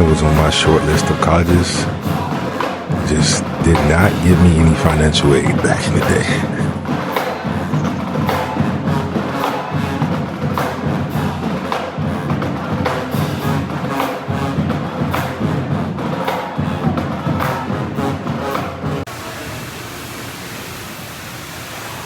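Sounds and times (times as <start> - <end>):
sharp drum strikes: 0.0 - 14.1
marching band playing: 0.0 - 19.3.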